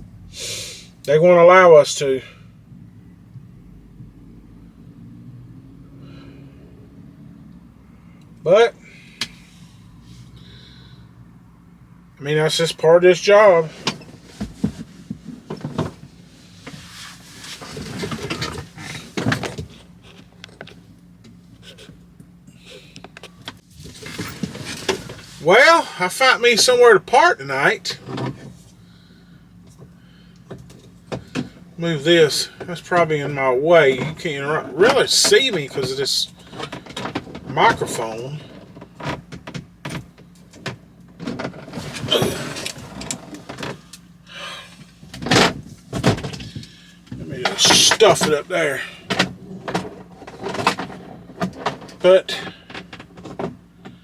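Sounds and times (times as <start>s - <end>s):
truck engine humming: 0.0s - 54.0s
rustling scrape: 13.7s - 20.4s, 23.7s - 25.5s
clicks and knocks of handling: 36.3s - 44.0s, 49.0s - 54.0s
clicks and rattles: 49.0s - 54.0s.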